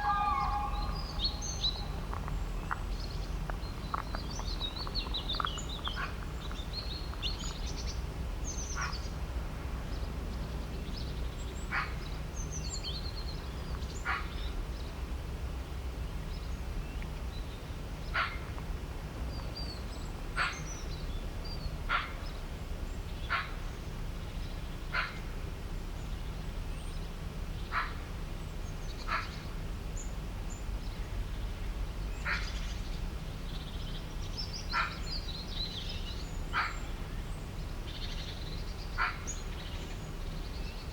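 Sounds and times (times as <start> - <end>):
sharp bird call: 0.0 - 2.1
steady low rumble: 0.0 - 6.6
birds twittering: 0.0 - 7.7.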